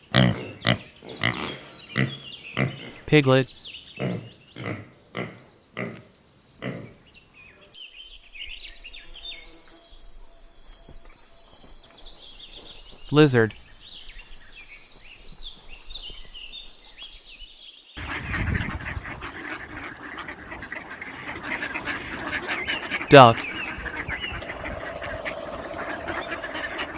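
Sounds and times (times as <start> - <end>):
bird chirps: 20.1 - 26.9.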